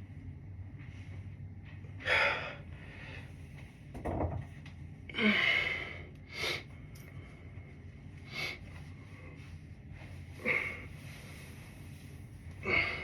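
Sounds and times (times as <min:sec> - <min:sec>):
person breathing hard: 0:02.0 - 0:03.4, 0:05.1 - 0:09.6, 0:10.2 - 0:11.9, 0:12.5 - 0:13.0.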